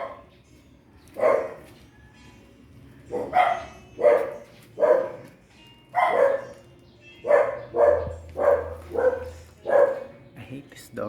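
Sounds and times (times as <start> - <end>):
dog barking: 0.0 - 0.3, 1.2 - 1.8, 3.1 - 10.2.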